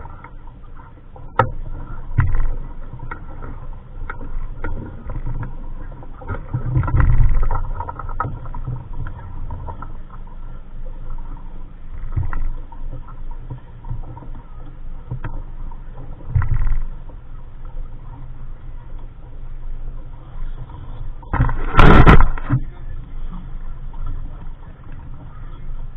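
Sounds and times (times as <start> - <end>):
rigging knocks and clicks: 1.3 - 3.3, 6.2 - 9.9
wind buffeting microphone: 20.6 - 25.9.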